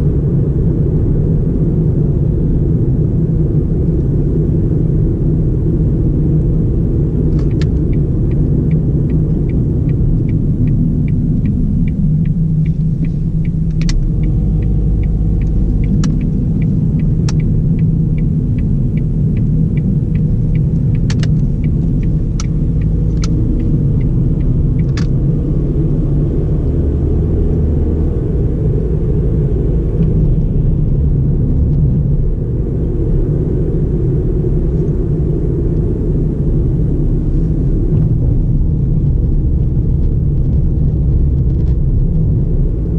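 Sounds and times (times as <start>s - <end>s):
car engine and road rumble: 0.0s - 42.9s
turn signal ticking: 6.3s - 32.0s
sharp clicks: 7.3s - 25.2s.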